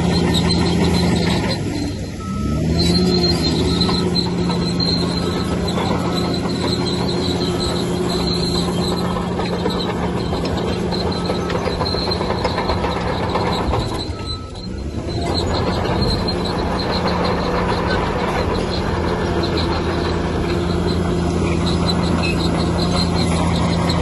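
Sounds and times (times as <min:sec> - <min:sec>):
bulldozer diesel engine: 0:00.0 - 0:24.0
crawler tracks squealing and clanking: 0:00.0 - 0:24.0.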